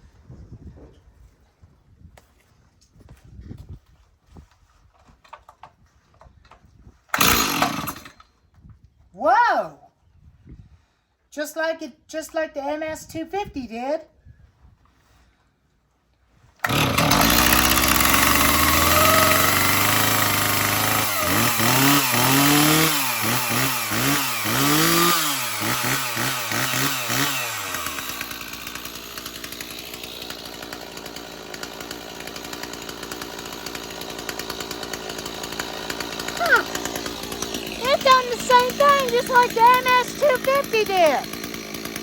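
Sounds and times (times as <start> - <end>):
chainsaw starting and revving: 7.1 - 8.3, 16.6 - 42.0.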